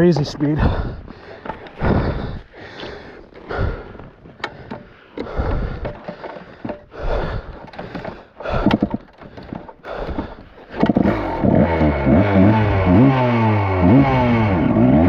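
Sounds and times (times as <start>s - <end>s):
snorting breath: 0.6s - 11.4s
dirt bike engine revving: 10.8s - 15.0s.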